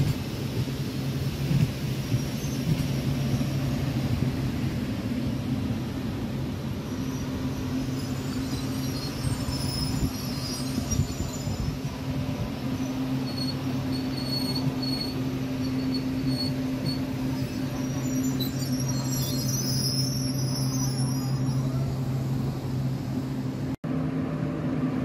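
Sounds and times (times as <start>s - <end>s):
electric train hum and rumble: 0.0s - 25.0s
wheel and brake squeals: 2.0s - 3.9s, 6.8s - 23.0s.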